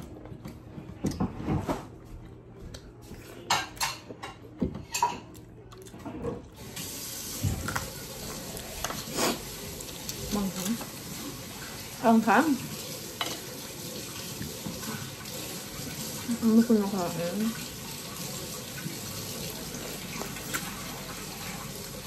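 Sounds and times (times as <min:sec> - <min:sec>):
dishes clattering: 0:03.5 - 0:05.3, 0:13.2 - 0:13.6
food sizzling in a pan: 0:06.6 - 0:22.0.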